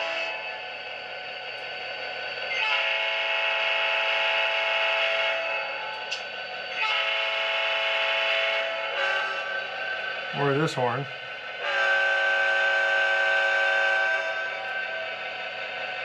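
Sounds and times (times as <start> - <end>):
model locomotive horn blasts: 0.0 - 0.6, 2.5 - 10.8, 11.6 - 15.2.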